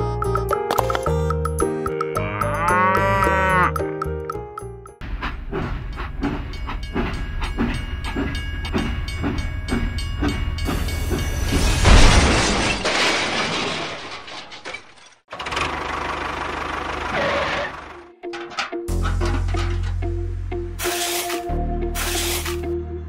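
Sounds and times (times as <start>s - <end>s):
light music: 0.0s - 5.0s, 18.0s - 23.0s
steam train chuffing: 5.0s - 11.6s.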